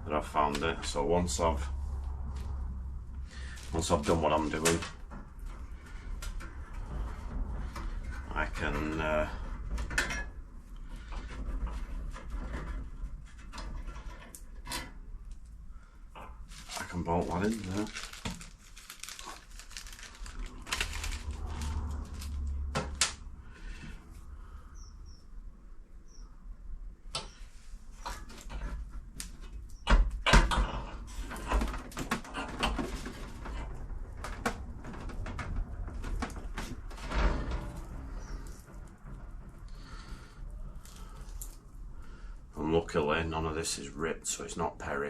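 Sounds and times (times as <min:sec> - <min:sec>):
car parts clicking and knocking: 0:31.2 - 0:39.8.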